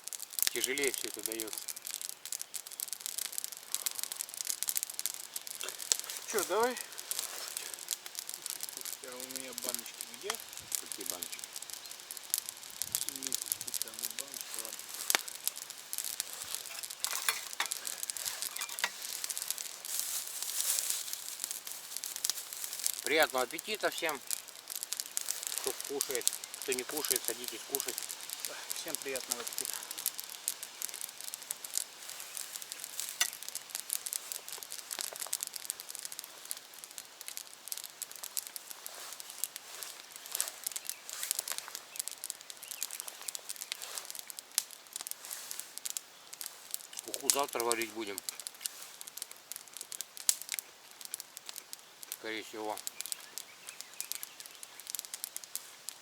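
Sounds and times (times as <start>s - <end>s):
campfire crackling: 0.0s - 56.0s
plastic packaging crinkling: 0.0s - 56.0s
sharp clicks and clinks: 16.6s - 19.0s.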